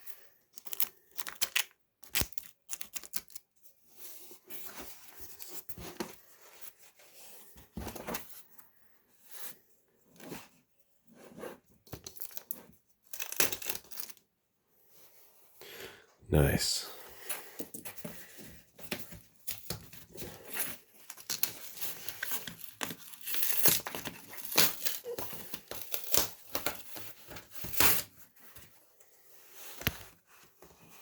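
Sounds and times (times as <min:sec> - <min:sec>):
package being torn open: 0:00.6 - 0:03.4, 0:13.1 - 0:14.2.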